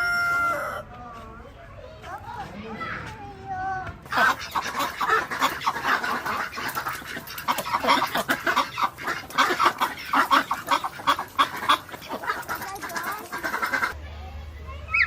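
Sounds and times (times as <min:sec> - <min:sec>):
poultry calling: 0:00.0 - 0:01.4, 0:04.0 - 0:14.0.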